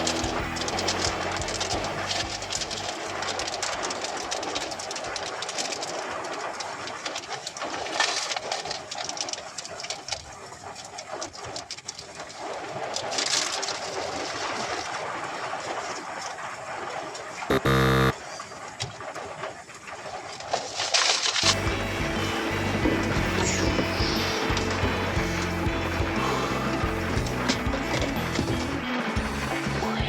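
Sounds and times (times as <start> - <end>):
loud buzzing tone: 17.5 - 18.2.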